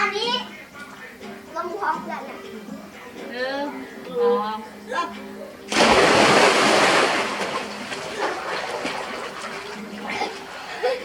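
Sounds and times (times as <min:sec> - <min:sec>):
people jumping into pool: 0:05.7 - 0:10.8
water churning and lapping: 0:05.7 - 0:11.0.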